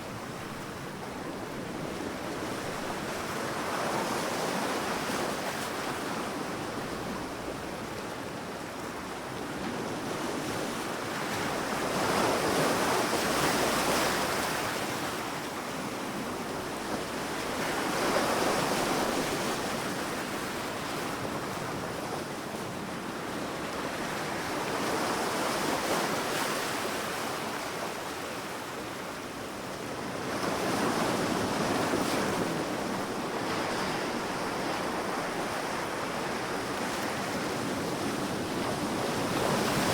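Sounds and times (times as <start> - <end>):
wind: 0.0 - 39.9
sea waves breaking on beach: 9.9 - 39.9.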